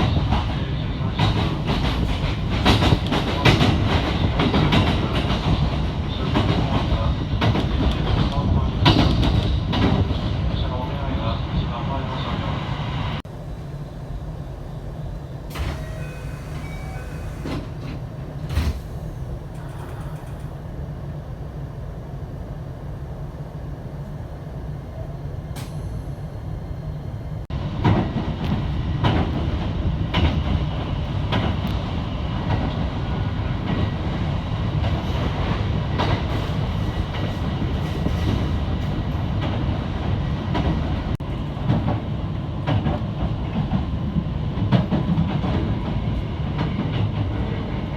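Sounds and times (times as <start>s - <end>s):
train wheels clicking over rail joints: 0.0s - 10.4s, 15.5s - 20.7s, 25.6s - 26.2s
train interior rumble: 0.0s - 47.9s.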